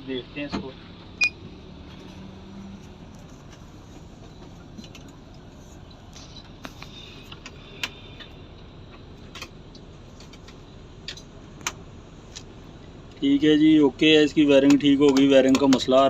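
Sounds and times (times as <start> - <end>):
bus engine idling: 0.0 - 16.0
light metallic clicks and taps: 14.6 - 15.9.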